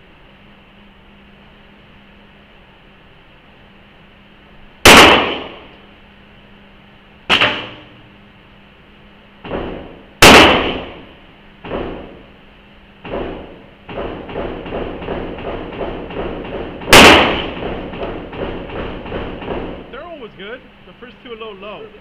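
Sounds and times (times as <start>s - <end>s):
handgun shots ringing indoors: 4.9s - 5.7s, 7.3s - 8.0s, 9.5s - 12.2s, 13.0s - 19.8s.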